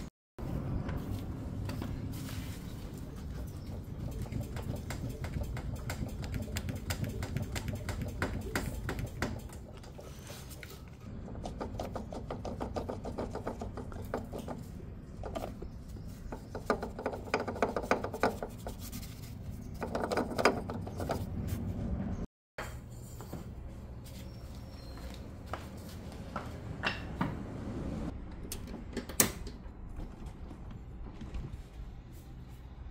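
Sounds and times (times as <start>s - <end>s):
hand tools clicking and knocking: 4.1s - 10.2s.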